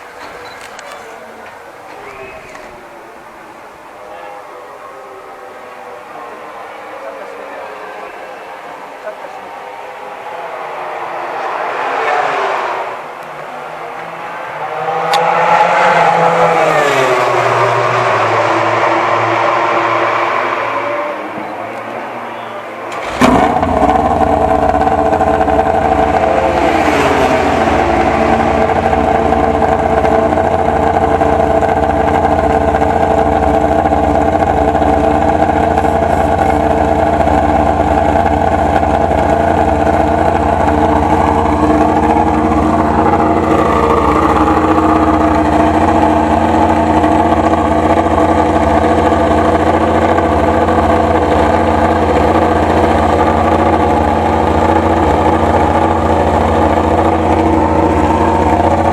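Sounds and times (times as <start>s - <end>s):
motorcycle engine idling: 21.4s - 58.9s.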